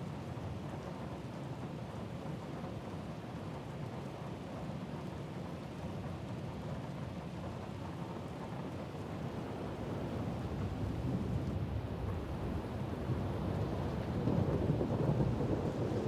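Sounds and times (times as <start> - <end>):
heavy rain: 0.0 - 16.0
thunder rumbling: 10.5 - 16.0.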